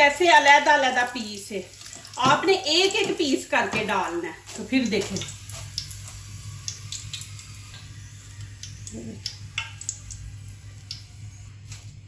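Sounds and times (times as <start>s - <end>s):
fried potatoes crackling: 0.0s - 12.0s.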